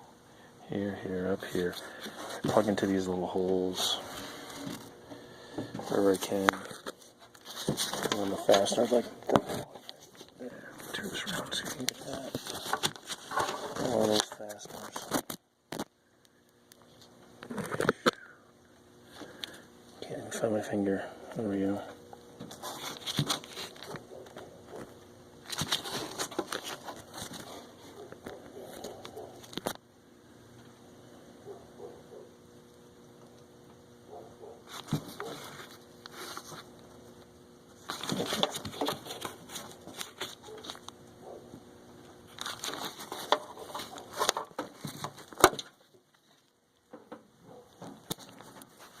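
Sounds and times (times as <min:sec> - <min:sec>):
plastic crinkling and rustling: 0:05.8 - 0:15.9, 0:22.5 - 0:29.8, 0:37.8 - 0:40.9, 0:42.2 - 0:46.6.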